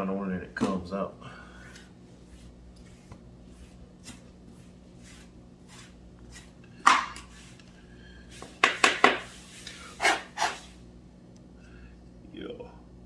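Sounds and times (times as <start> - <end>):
steady low hum: 0.0 - 13.0
hard objects knocking on workbench: 8.6 - 9.3.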